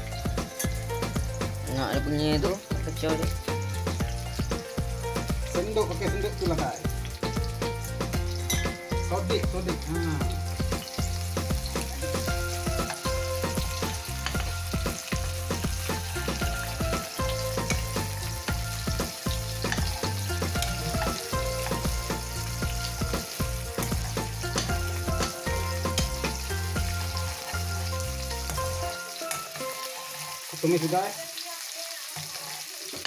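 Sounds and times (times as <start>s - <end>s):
vegetables sizzling in hot oil: 0.0s - 33.0s
spatula scraping and tapping pan: 19.6s - 22.0s.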